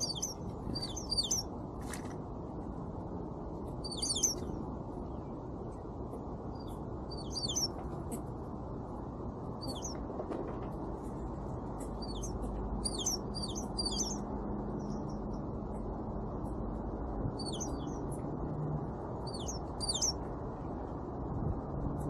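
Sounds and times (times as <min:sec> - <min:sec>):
songbirds calling: 0:00.0 - 0:02.1, 0:03.6 - 0:08.4, 0:09.4 - 0:10.1, 0:11.0 - 0:18.3, 0:18.9 - 0:20.8
low background rumble: 0:00.0 - 0:22.0.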